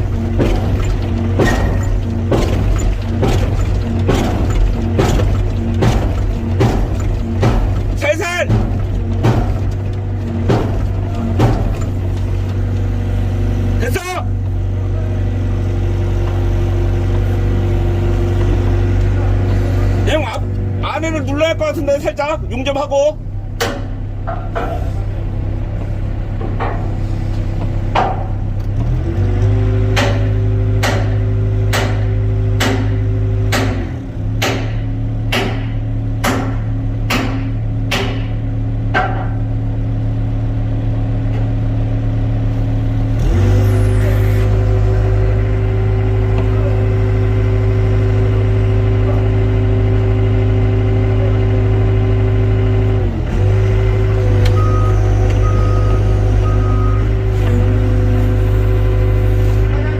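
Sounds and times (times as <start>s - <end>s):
sharp knocks: 0.0s - 12.9s, 27.9s - 28.4s, 30.0s - 39.5s
excavator diesel engine revving: 0.0s - 59.9s
short beeps: 54.6s - 57.0s.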